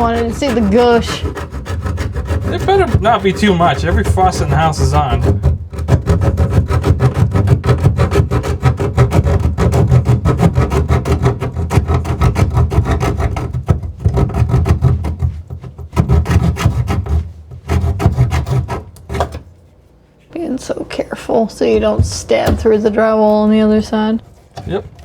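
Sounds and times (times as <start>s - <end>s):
power saw cutting wood: 0.0s - 19.4s.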